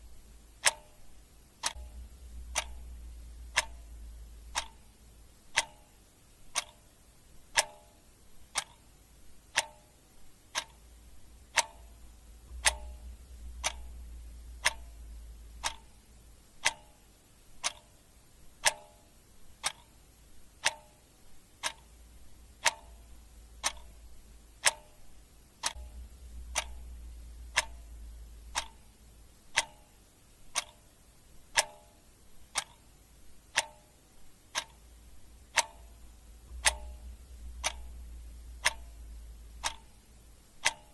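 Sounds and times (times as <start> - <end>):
clock ticking: 0.0 - 40.9
faint low rumble: 0.0 - 40.9.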